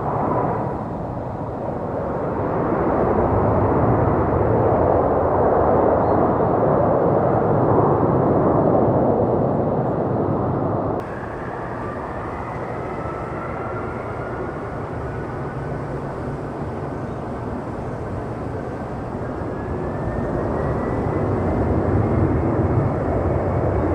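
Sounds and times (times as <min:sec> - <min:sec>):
faint high whine: 0:00.0 - 0:03.9, 0:11.0 - 0:23.9
jet engine noise: 0:00.0 - 0:23.9.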